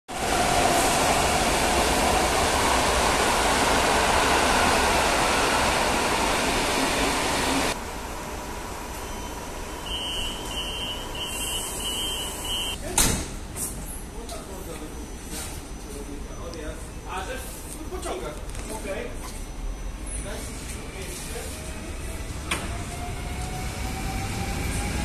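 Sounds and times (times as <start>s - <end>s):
high-pitched door warning beeps: 9.0s - 12.8s.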